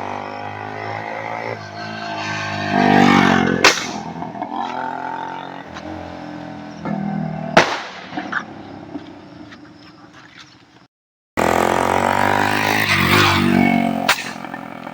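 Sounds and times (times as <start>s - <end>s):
two-stroke motorcycle engine revving: 0.0s - 8.6s, 11.4s - 14.9s
exhaust pop: 3.6s - 4.8s, 6.8s - 8.5s.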